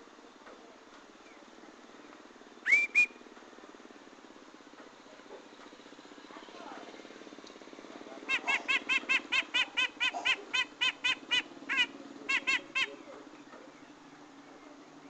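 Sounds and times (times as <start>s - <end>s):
faint low hum: 0.0s - 15.0s
bird chattering call: 8.1s - 14.0s.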